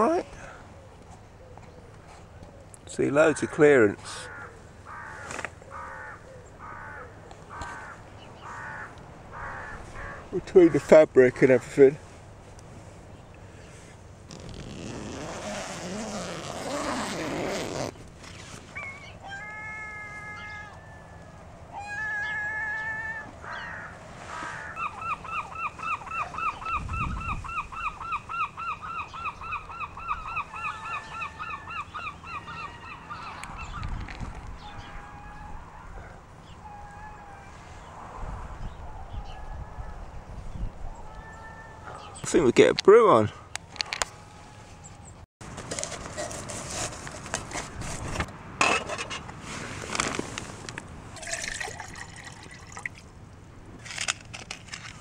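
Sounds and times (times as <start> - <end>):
birds honking calls: 2.9 - 11.0, 20.2 - 34.0
tent fabric rustling: 13.7 - 19.0, 49.4 - 50.8
rapid repeated bird calls: 23.4 - 34.0
wind rumble on microphone: 26.6 - 28.0, 33.4 - 36.1, 36.8 - 41.9.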